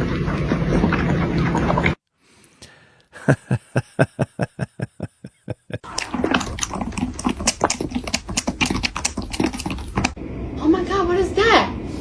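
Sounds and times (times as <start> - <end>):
cat lapping milk: 5.8 - 10.2.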